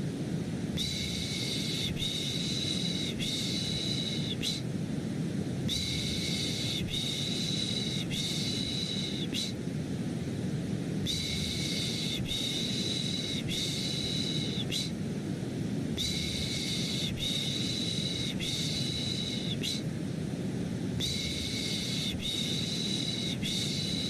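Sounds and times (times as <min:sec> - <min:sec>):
low rushing white noise: 0:00.0 - 0:24.0.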